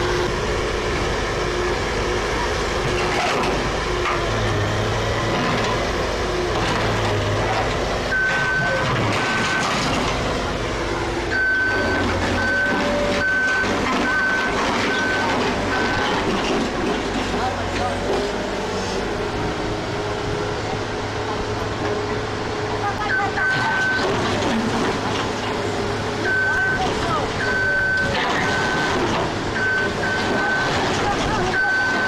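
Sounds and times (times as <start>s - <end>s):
heavy vehicle engine running: 0.0s - 32.0s
reversing alarm beeps: 8.1s - 9.8s, 11.3s - 16.3s, 23.1s - 24.2s, 26.2s - 32.0s.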